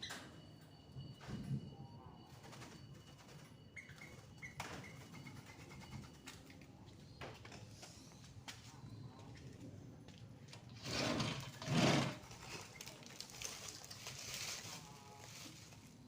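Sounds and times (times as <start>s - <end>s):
bird chirp: 3.0s - 6.3s.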